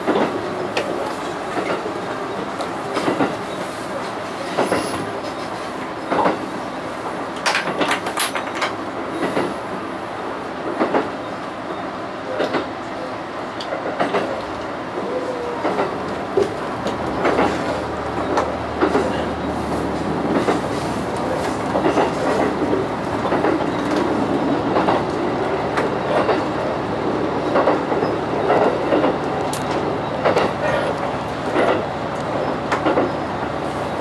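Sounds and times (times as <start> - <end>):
train running noise: 0.0 - 34.0
wheel clicks over rail joints: 7.4 - 9.5, 15.6 - 26.5, 27.5 - 33.2.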